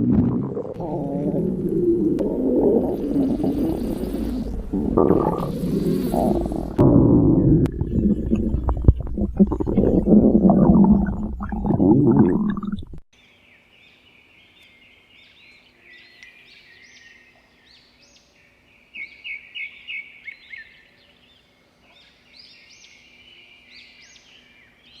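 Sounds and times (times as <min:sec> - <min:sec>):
stomach growl: 0:00.0 - 0:13.0.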